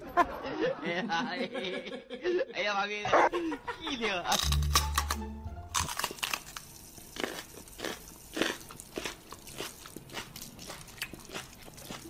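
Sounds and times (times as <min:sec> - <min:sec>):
crunchy chewing: 0:04.3 - 0:12.0.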